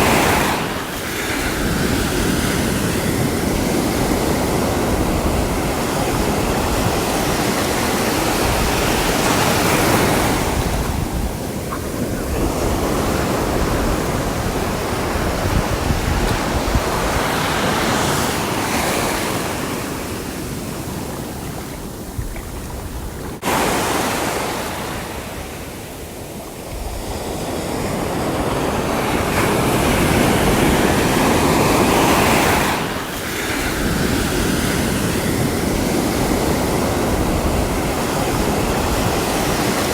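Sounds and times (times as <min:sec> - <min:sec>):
sea waves washing in: 0:00.0 - 0:39.9.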